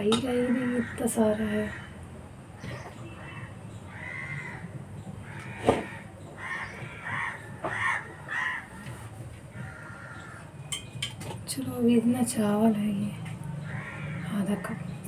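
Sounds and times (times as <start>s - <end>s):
bird calling: 2.6s - 11.2s.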